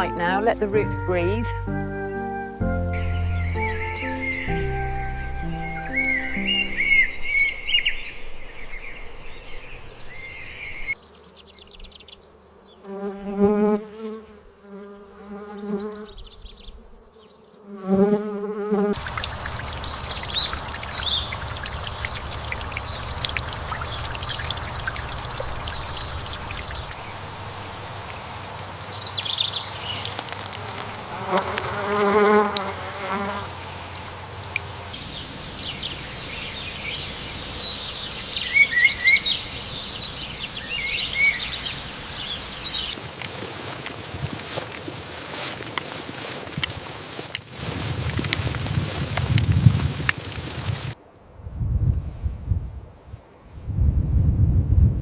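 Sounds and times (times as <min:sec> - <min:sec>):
bird chirps: 0:00.0 - 0:12.4, 0:19.0 - 0:27.4, 0:34.0 - 0:43.0
outdoor background noise: 0:00.0 - 0:55.0
insect buzzing past: 0:01.9 - 0:48.4.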